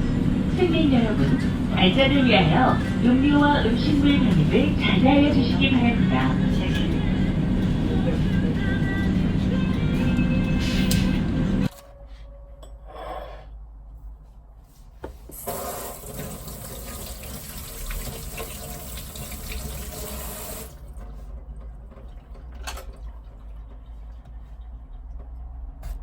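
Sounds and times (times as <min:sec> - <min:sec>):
water running into a sink: 0:15.4 - 0:20.9.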